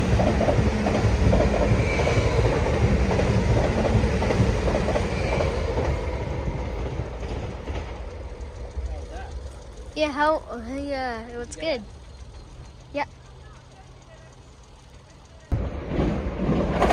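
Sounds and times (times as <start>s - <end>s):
train wheels clattering over rails: 0.0s - 16.9s
faint high wheel squeal: 1.6s - 2.8s, 5.0s - 5.8s.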